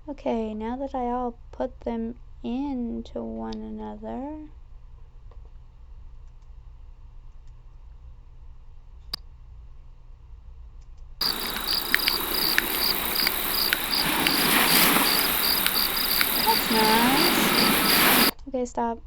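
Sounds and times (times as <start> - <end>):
click: 11.2 - 16.7
crickets chirping: 11.2 - 18.3
fire crackling: 11.2 - 18.3
ocean waves: 11.2 - 18.3.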